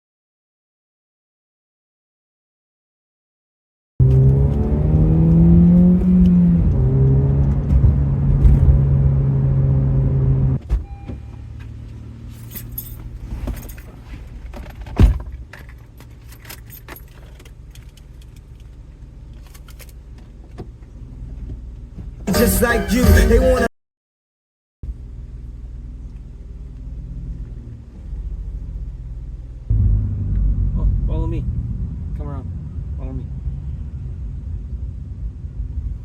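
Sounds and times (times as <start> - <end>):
car engine running: 4.0 - 10.6, 24.9 - 36.0
keys jangling: 12.4 - 14.0, 15.6 - 18.4
sharp knock: 29.7 - 31.1.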